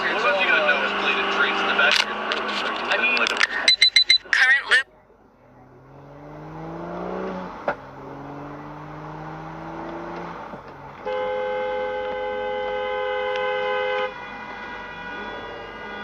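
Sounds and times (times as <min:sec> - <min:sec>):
two-tone car horn: 0:00.0 - 0:04.6, 0:09.6 - 0:16.0
car engine accelerating: 0:00.0 - 0:16.0.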